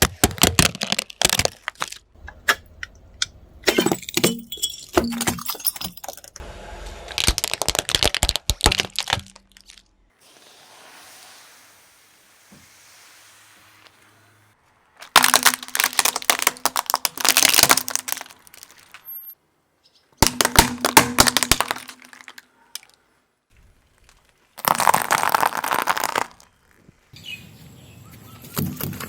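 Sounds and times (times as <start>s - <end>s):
objects crushed under car tyre: 7.0s - 9.8s, 15.0s - 19.1s, 20.2s - 22.9s, 24.0s - 26.9s.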